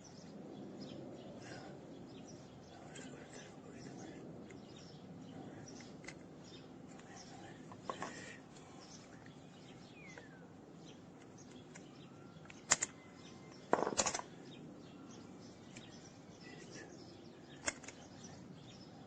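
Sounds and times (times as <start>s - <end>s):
faint background chirping: 0.0s - 19.0s
sharp metallic click: 11.4s - 13.0s, 13.8s - 14.3s, 17.6s - 18.1s.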